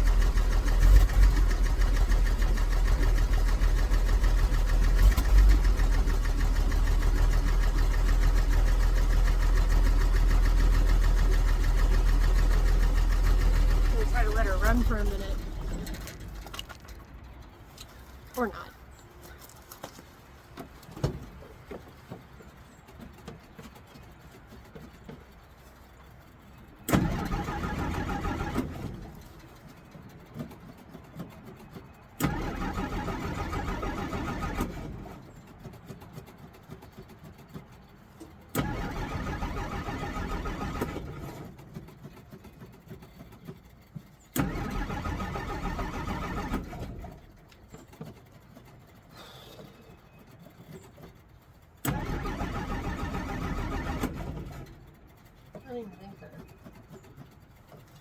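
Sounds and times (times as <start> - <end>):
engine starter cranking: 0.0 - 17.9, 26.8 - 30.8, 31.4 - 35.8, 36.6 - 49.4, 51.8 - 55.6.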